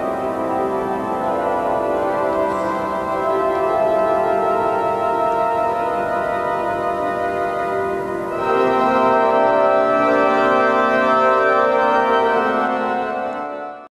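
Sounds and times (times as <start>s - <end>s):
pipe organ chords: 0.0s - 13.9s.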